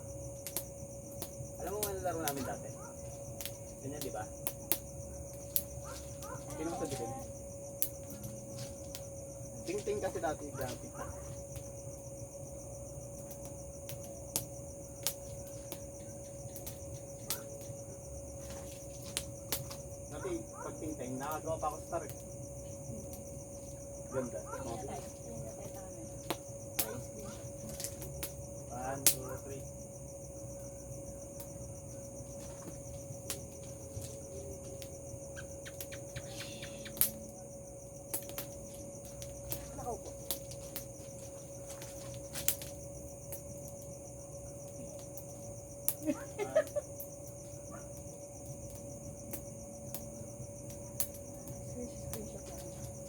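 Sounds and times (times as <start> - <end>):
crickets chirring: 0.0 - 53.0
sharp crackles and pops: 0.0 - 53.0
sharp pops: 35.4 - 37.2.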